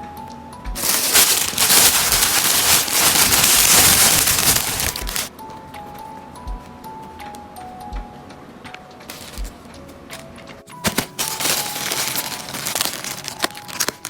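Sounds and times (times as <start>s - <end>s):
soft background music: 0.0s - 14.0s
plastic packaging crinkling: 0.8s - 5.3s, 9.1s - 9.6s, 10.7s - 14.0s.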